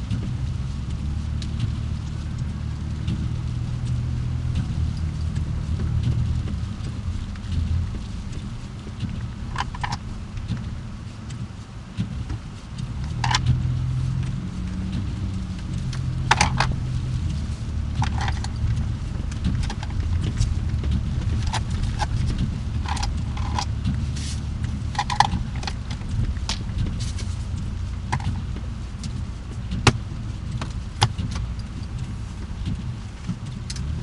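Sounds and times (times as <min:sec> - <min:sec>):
car engine and road rumble: 0:00.0 - 0:34.0
short clicks and rattles: 0:15.8 - 0:27.3.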